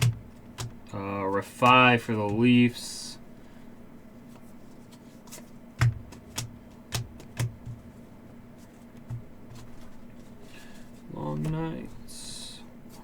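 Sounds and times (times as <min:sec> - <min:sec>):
cards tapping and clicking: 0:00.0 - 0:02.7, 0:04.9 - 0:07.9
faint steady hum: 0:00.0 - 0:13.0.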